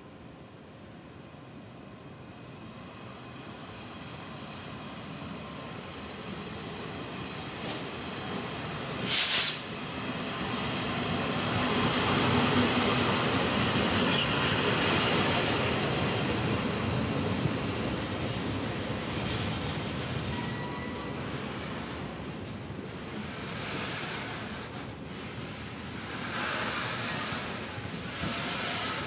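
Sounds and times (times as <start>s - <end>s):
freight train rumbling past: 0.3s - 29.0s
high-pitched wheel squeal: 4.9s - 17.5s.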